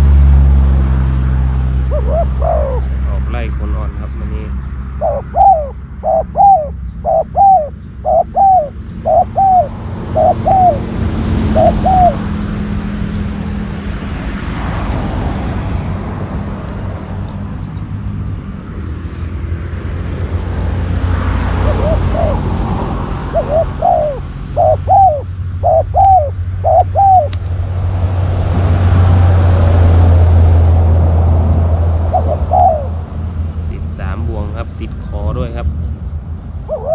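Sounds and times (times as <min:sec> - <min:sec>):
dove cooing: 0:01.9 - 0:03.3, 0:05.0 - 0:12.2, 0:21.5 - 0:22.6, 0:23.2 - 0:27.4, 0:32.1 - 0:33.0, 0:36.7 - 0:36.9.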